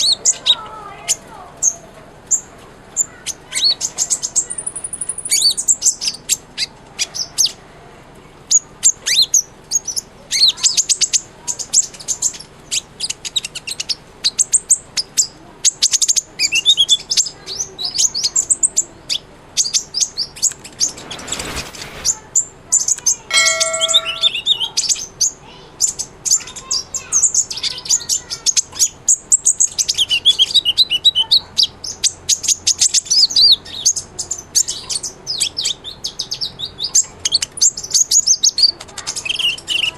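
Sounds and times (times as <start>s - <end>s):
bird twittering chirps and trills: 23.3s - 30.9s.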